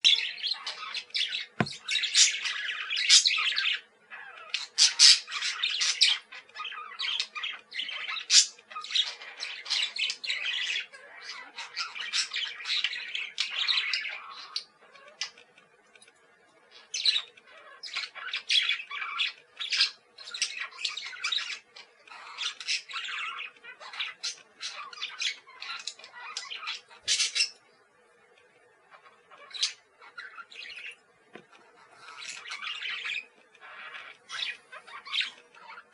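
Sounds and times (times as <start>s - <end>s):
budgerigar chattering and squawking: 0.1s - 15.4s, 16.8s - 27.6s.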